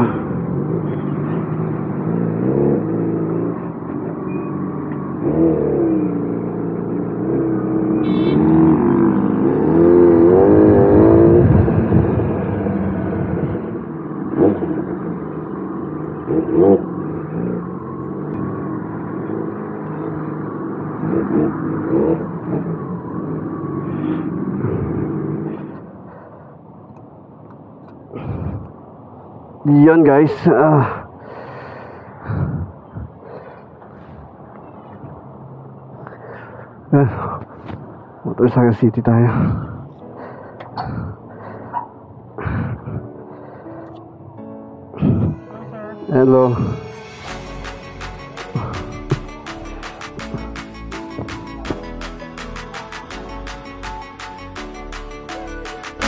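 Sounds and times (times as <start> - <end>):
motorcycle engine revving: 0.0 - 25.8.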